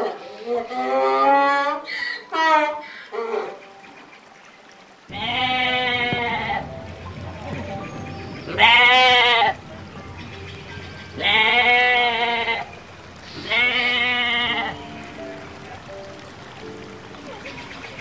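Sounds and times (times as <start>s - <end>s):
sheep bleating: 11.2s - 12.7s, 13.3s - 14.9s.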